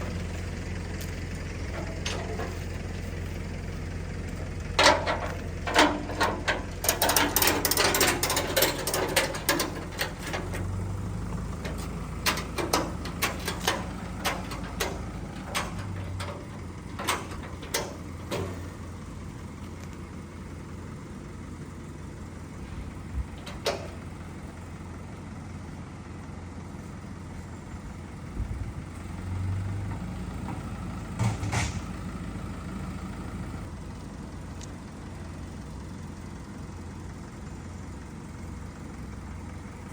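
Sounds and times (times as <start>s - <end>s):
vehicle engine idling: 0.0s - 39.9s
metallic clicks and knocks: 4.8s - 10.8s, 11.6s - 18.7s, 23.4s - 24.0s.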